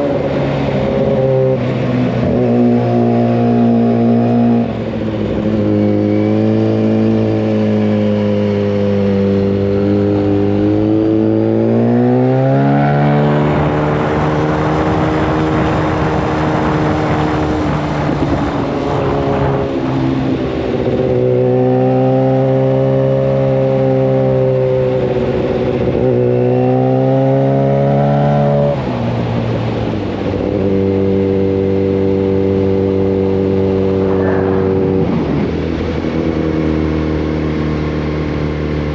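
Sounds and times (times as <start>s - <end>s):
motorcycle engine revving: 0.0s - 38.9s
rushing noise: 33.1s - 36.9s.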